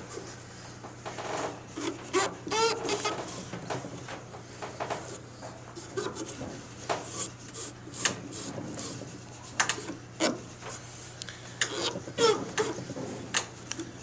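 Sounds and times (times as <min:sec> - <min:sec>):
steady low hum: 0:00.0 - 0:14.0
cloth rag rubbing wood: 0:07.0 - 0:09.5.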